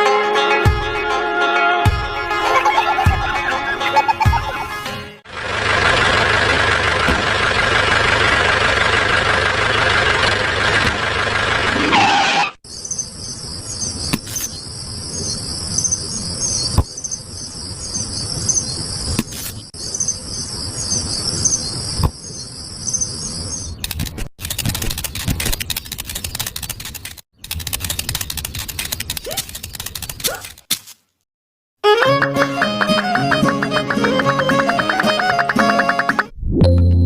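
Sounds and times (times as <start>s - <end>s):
crickets chirping: 12.7s - 23.6s
fast dense rattling clicks: 23.8s - 30.2s.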